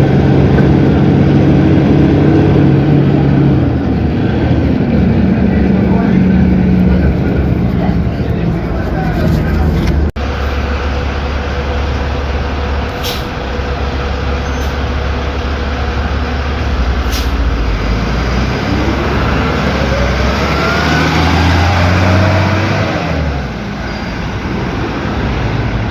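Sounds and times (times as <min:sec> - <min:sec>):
diesel bus engine running: 0:00.0 - 0:25.9
short hisses: 0:12.9 - 0:13.4, 0:17.0 - 0:17.5.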